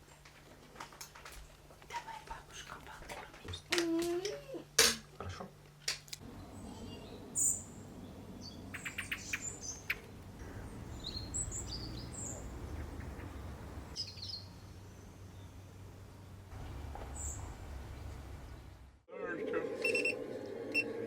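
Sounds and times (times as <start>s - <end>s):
small birds chirping: 6.2s - 16.4s.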